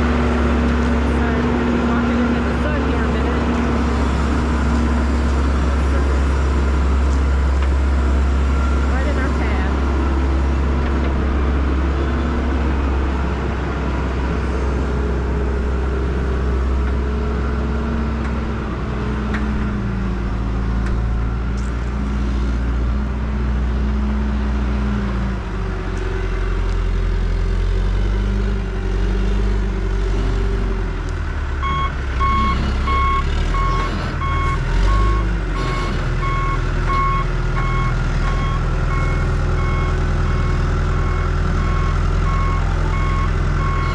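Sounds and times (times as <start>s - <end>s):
backhoe engine running: 0.0s - 43.9s
reversing alarm beeping: 31.6s - 43.9s.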